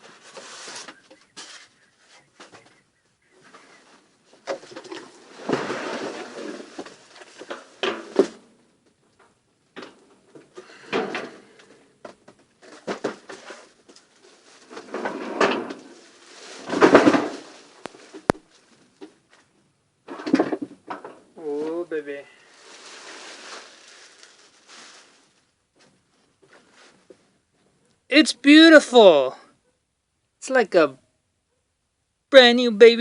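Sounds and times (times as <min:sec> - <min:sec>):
cardboard box rustling and scraping: 0:00.0 - 0:02.7, 0:03.4 - 0:08.4, 0:22.5 - 0:25.4.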